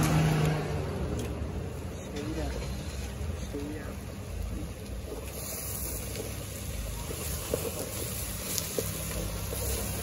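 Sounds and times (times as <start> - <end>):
cabbage frying in oil: 2.3 - 10.0.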